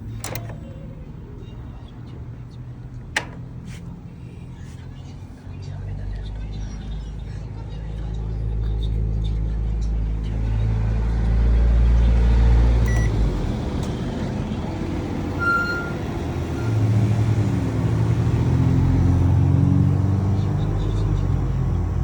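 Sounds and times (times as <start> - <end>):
microwave oven humming: 10.3 - 19.5
short high beeps: 15.4 - 16.8.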